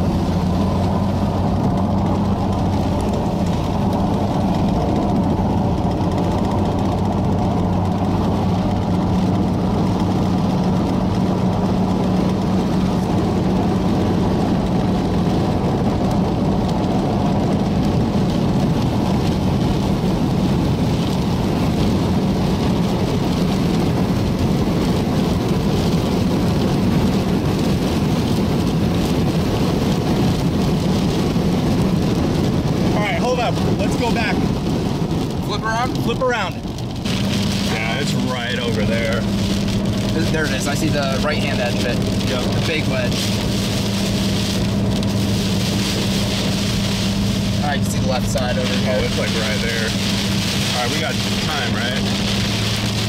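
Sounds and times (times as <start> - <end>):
car engine hum: 0.0 - 53.0
road noise inside car: 0.0 - 53.0.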